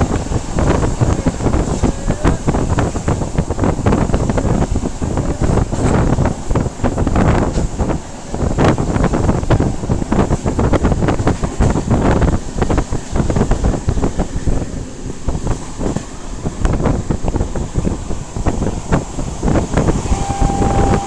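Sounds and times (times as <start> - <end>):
train rumbling and rattling: 0.0 - 21.0
wind buffeting microphone: 0.0 - 21.0.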